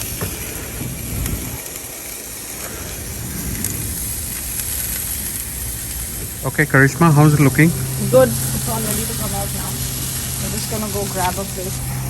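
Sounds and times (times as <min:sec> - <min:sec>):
food sizzling on charcoal grill: 0:00.0 - 0:12.0
low rumble: 0:03.0 - 0:12.0.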